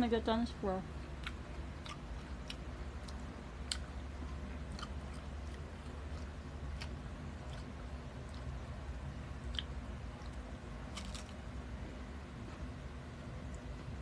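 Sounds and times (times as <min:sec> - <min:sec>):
low steady hum: 0:00.0 - 0:14.0
person chewing: 0:01.1 - 0:11.4.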